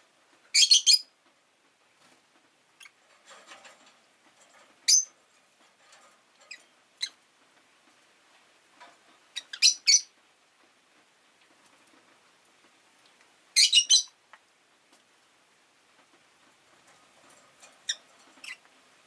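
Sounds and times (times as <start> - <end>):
lovebirds chirping: 0.5 - 1.1, 4.8 - 5.2, 9.3 - 10.1, 13.6 - 14.2, 17.8 - 18.7
soft bird chatter: 2.0 - 8.1, 8.8 - 10.2, 13.0 - 14.4, 16.6 - 19.0.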